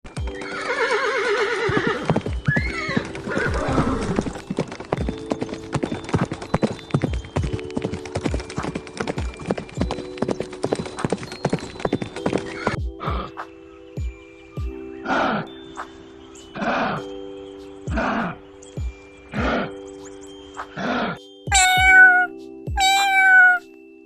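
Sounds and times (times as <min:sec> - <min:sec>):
hooves clip-clopping on hard ground: 0:00.1 - 0:13.3, 0:21.5 - 0:23.6
horse whinnying: 0:00.3 - 0:04.4, 0:21.5 - 0:23.6.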